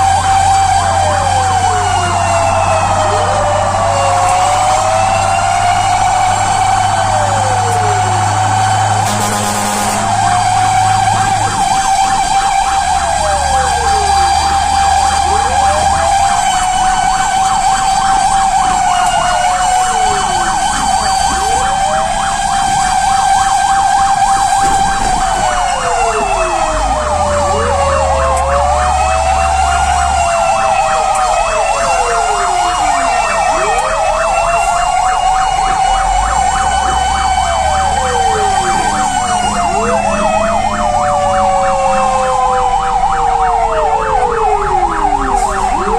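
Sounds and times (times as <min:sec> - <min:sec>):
fire engine sirens wailing: 0:00.0 - 0:45.9.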